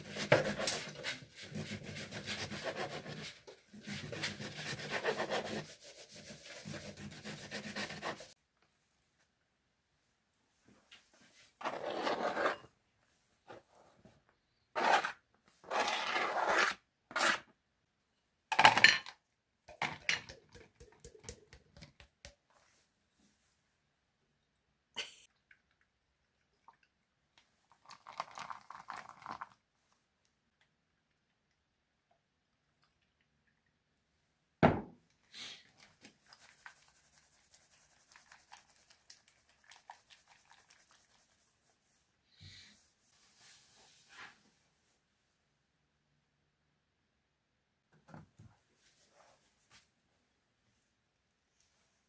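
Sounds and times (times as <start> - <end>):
loud thump: 34.6 - 35.0
rustling and scraping: 43.1 - 44.9.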